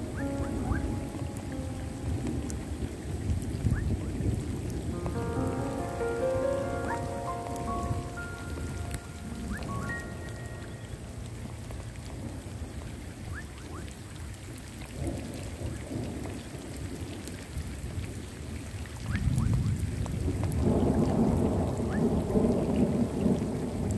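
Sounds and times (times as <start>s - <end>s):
thunder rumbling: 0.0s - 13.4s, 19.2s - 23.9s
rain drop ticks: 0.0s - 23.9s
rain on puddle and foliage: 0.0s - 23.9s.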